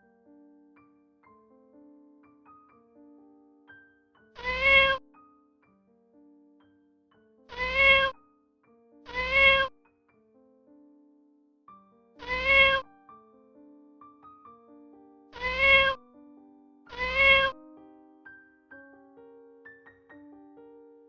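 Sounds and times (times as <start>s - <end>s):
soft keyboard music: 0.0s - 21.0s
cat meowing: 4.4s - 5.0s, 7.5s - 8.2s, 9.1s - 9.8s, 12.2s - 12.9s, 15.4s - 16.0s, 16.9s - 17.6s.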